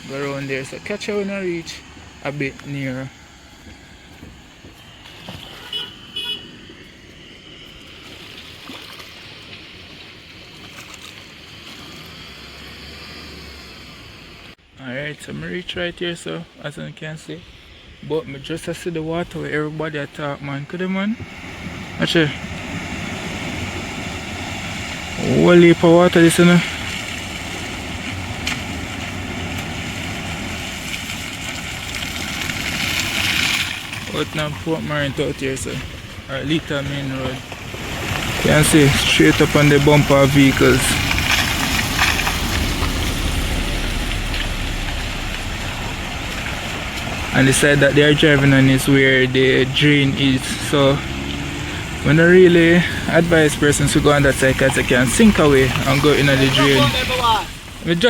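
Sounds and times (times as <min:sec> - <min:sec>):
road traffic noise: 0:00.0 - 0:14.8, 0:21.1 - 0:58.0
outdoor noise rush: 0:00.0 - 0:58.0
vehicle horn toots: 0:05.5 - 0:06.6
vehicle engine running: 0:21.3 - 0:58.0.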